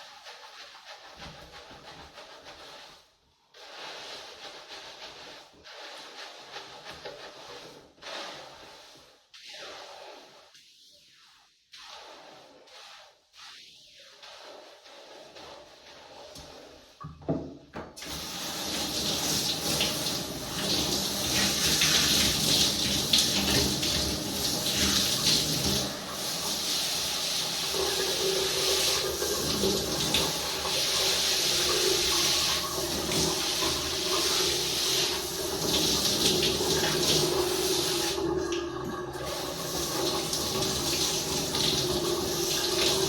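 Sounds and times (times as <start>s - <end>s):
tap water running: 15.8s - 43.0s
water splashing on hair: 18.0s - 43.0s.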